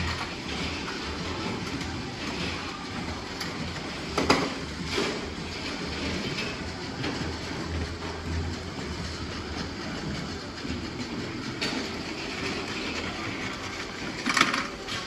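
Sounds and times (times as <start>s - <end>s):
toy train rattling on track: 11.0s - 15.0s.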